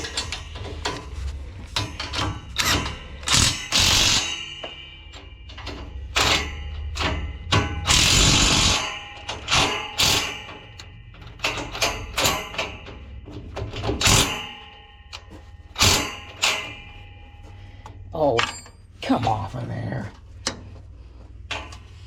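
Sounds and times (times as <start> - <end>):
metal parts clanking: 0.0 - 19.6, 21.5 - 22.0
sharp metal strikes: 1.8 - 17.3, 18.2 - 19.0.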